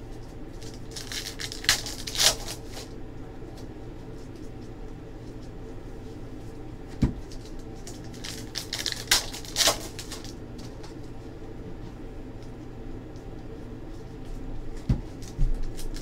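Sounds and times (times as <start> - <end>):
low hum: 0.0 - 16.0
trading cards rustling: 7.2 - 11.2.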